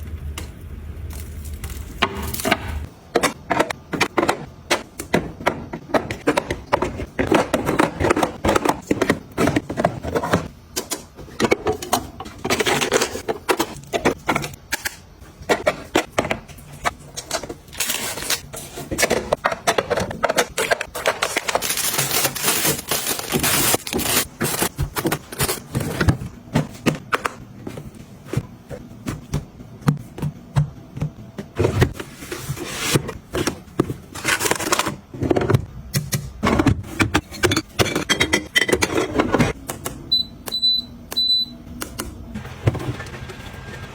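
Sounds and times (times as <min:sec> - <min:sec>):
packaging rustling: 0:20.5 - 0:26.2.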